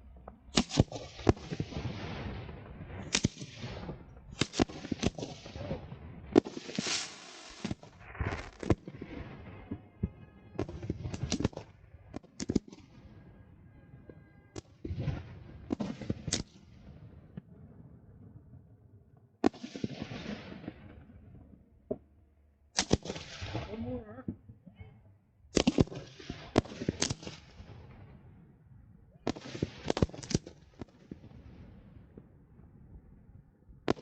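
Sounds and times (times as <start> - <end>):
fireworks crackling and hissing: 0.0 - 13.0, 19.4 - 21.1, 22.8 - 24.0, 25.6 - 28.1, 29.2 - 32.2
fireworks banging: 0.0 - 16.6.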